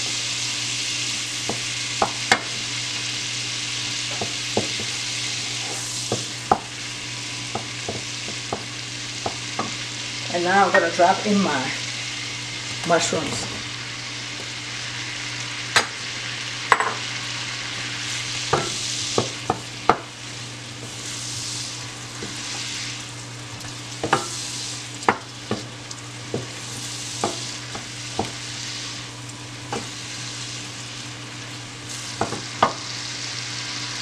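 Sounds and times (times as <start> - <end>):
mushrooms sizzling in a pan: 0.0 - 34.0
wooden spoon knocking a pan: 32.2 - 32.8.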